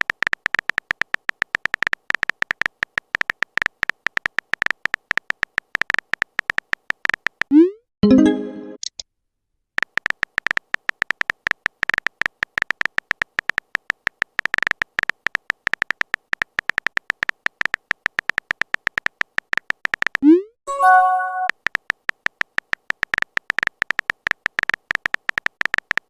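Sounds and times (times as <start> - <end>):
message alert chime: 8.0 - 8.8, 20.7 - 21.5
phone keyboard tapping clicks: 9.8 - 20.2, 21.4 - 26.0.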